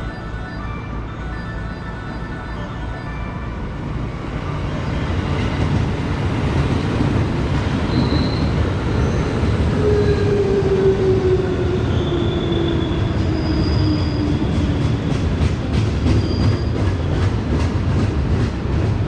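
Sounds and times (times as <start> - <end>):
electric train rumble: 0.0 - 19.0
high wheel squeals: 7.9 - 9.4, 11.9 - 14.5, 16.2 - 17.0.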